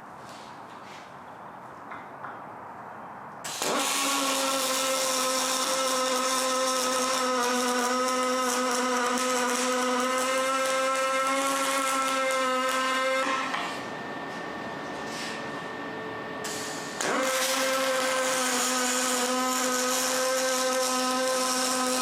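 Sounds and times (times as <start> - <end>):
power tool motor whining: 16.5 - 22.0.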